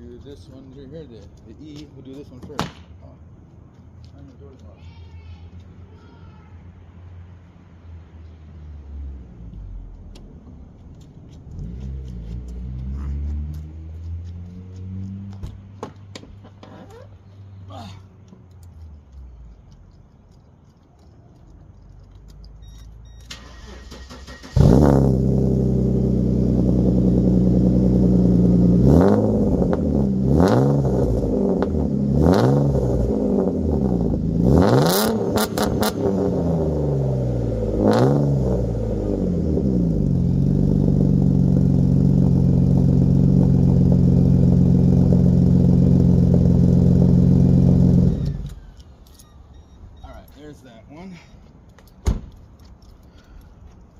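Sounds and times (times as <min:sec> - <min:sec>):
car engine revving and idling: 0:08.7 - 0:15.8, 0:23.4 - 0:48.7.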